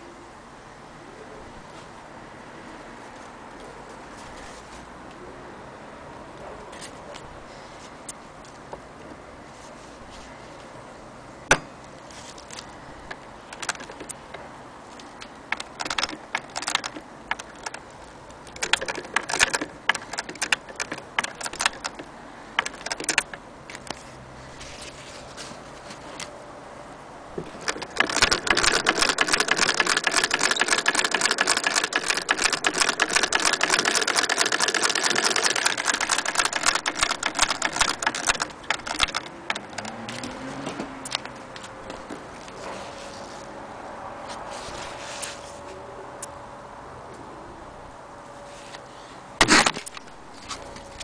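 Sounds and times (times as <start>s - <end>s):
sewing machine mechanism clicking: 13.0s - 14.2s, 15.5s - 17.9s, 18.5s - 23.9s, 27.4s - 40.2s
sewing machine rattling: 13.5s - 14.1s, 15.5s - 17.9s, 18.5s - 23.4s, 27.4s - 40.0s.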